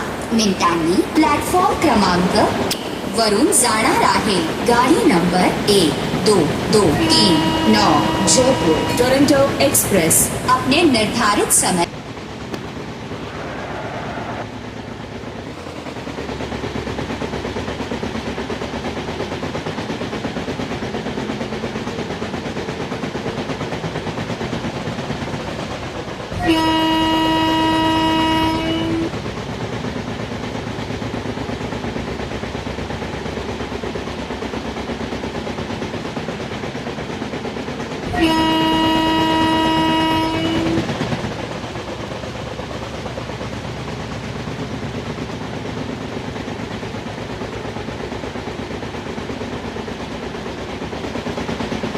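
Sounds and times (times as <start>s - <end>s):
train running: 0.0s - 51.9s
locomotive horn blasts: 6.8s - 11.4s, 26.3s - 29.1s, 38.1s - 40.9s.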